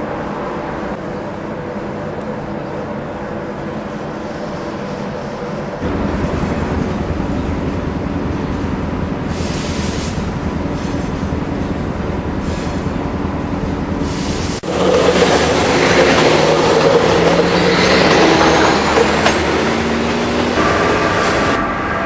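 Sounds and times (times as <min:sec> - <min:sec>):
train low rumble: 0:00.0 - 0:22.0
train running with rising whine: 0:00.0 - 0:22.0.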